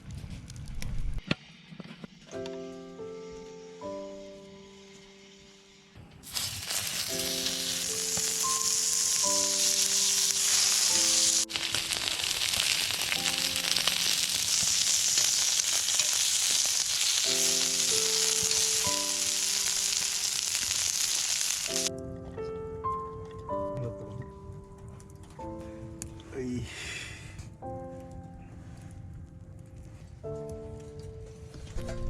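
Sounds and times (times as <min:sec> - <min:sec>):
food sizzling in a pan: 0:03.2 - 0:21.9.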